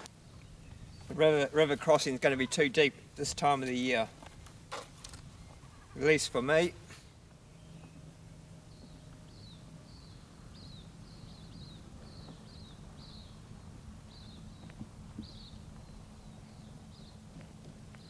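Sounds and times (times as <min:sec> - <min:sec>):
bird chirping: 0:07.5 - 0:08.1, 0:08.7 - 0:17.2.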